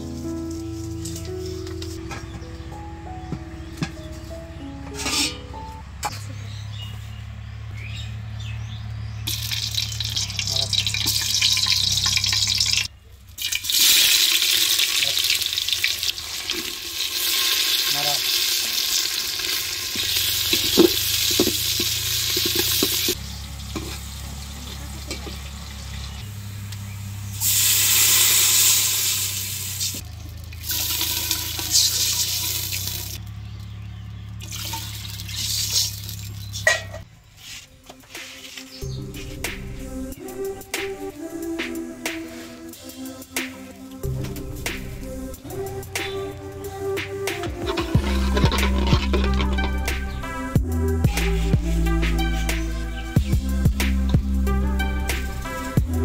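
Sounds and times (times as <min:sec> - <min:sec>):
spatula scraping pot: 0:04.9 - 0:05.4, 0:19.5 - 0:23.2, 0:47.5 - 0:49.9
water hissing in hot pot: 0:09.3 - 0:30.0, 0:30.6 - 0:33.2, 0:34.4 - 0:36.4
spices sizzling in hot oil: 0:09.3 - 0:33.2, 0:34.4 - 0:36.6.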